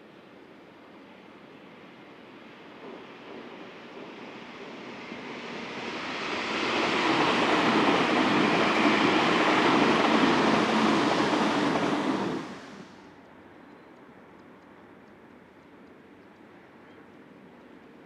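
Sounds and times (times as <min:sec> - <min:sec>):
electric train passing: 0:01.7 - 0:13.0.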